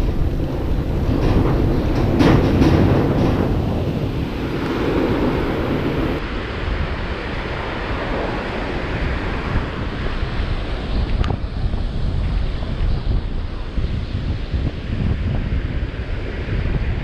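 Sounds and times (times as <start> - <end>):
surf washing onto beach: 0.0 - 12.7
wind buffeting microphone: 0.0 - 17.0.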